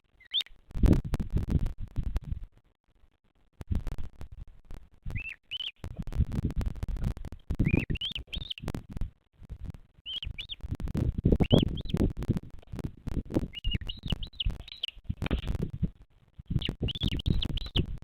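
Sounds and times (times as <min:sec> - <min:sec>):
vulture chick peeping: 0:00.2 - 0:00.6, 0:05.1 - 0:06.0, 0:07.0 - 0:08.8, 0:10.0 - 0:15.7, 0:16.5 - 0:18.0.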